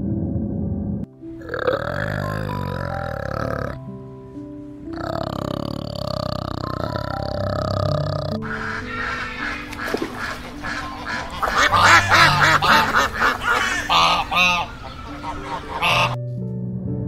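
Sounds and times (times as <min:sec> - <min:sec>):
shelducks honking: 0:08.4 - 0:16.2.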